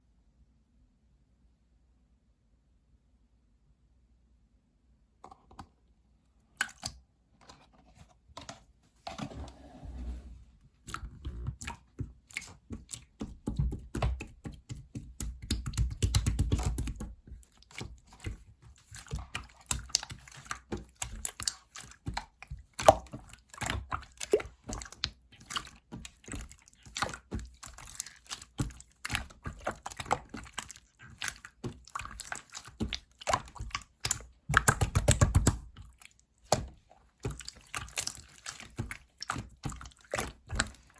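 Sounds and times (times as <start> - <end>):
slime squishing and popping: 12.3 - 40.9.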